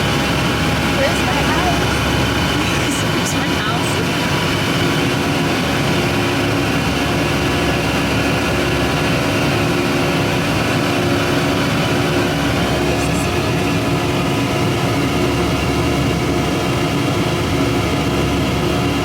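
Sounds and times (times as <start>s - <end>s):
airliner cabin engine drone: 0.0s - 19.0s.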